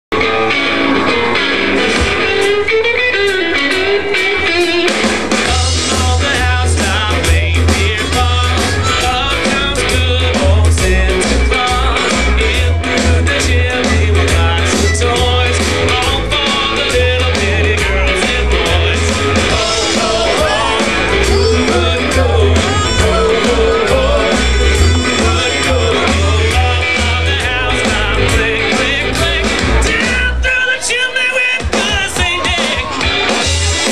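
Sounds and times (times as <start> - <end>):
live rock band playing: 0.1 - 33.9
heavy bass line: 5.3 - 30.6
person singing: 5.5 - 32.7.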